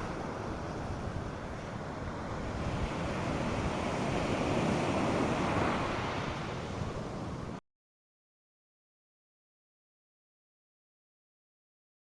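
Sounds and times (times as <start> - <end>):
waves breaking on a beach: 0.0 - 7.6.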